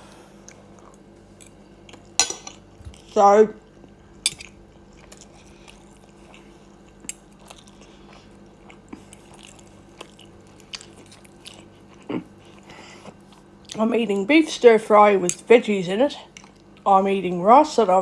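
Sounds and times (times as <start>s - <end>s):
person chewing food: 0.0s - 13.8s, 16.3s - 16.9s
low steady hum: 0.0s - 18.0s.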